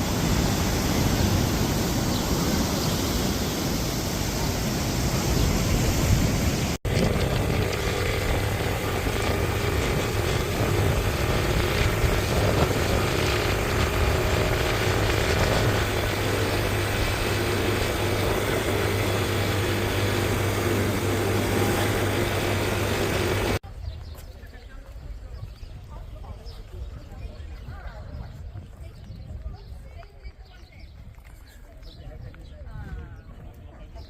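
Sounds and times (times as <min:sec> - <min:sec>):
motorcycle engine humming: 0:00.0 - 0:23.6
wind rush: 0:00.0 - 0:23.6.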